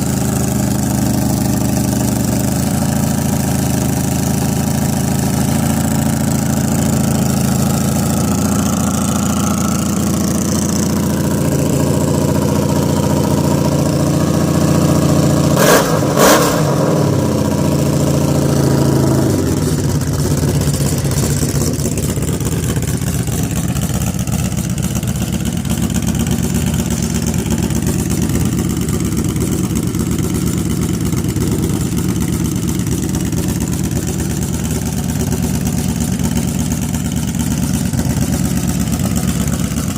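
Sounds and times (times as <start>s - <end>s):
motorcycle engine idling: 0.0s - 39.9s
loud engine bursts: 3.4s - 21.3s.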